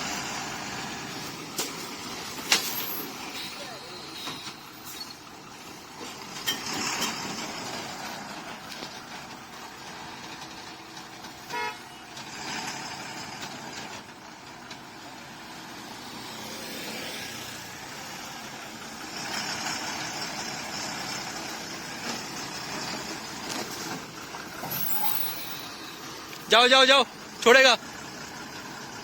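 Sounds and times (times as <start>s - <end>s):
road traffic noise: 0.0s - 29.0s
vehicle horn toot: 11.5s - 12.0s.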